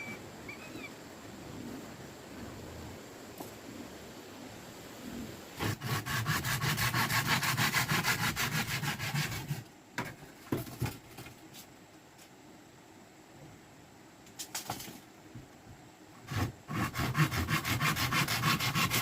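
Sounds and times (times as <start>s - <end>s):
hand saw cutting: 5.6s - 9.7s, 16.2s - 19.0s.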